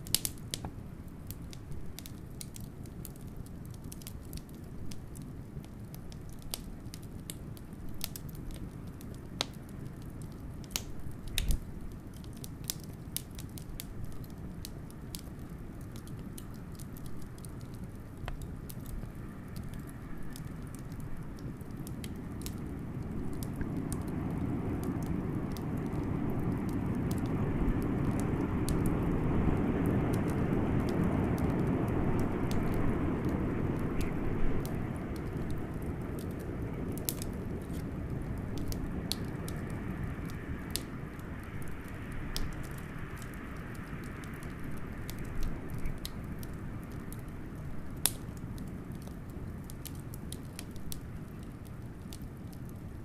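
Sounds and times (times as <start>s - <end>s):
blizzard wind: 0.0s - 53.0s
wood fire crackling and popping: 0.0s - 53.0s.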